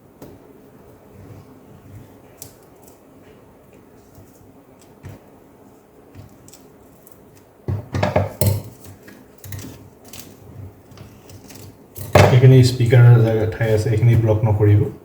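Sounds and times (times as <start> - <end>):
knocking and rattling: 7.7 - 8.7.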